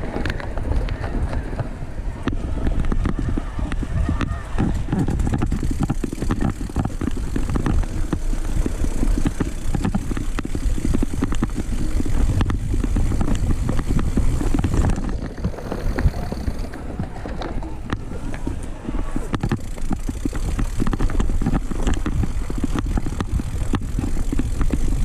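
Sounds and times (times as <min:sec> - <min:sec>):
bike rattling knocks: 0:00.0 - 0:25.0
bike tyre rumble: 0:00.0 - 0:25.0.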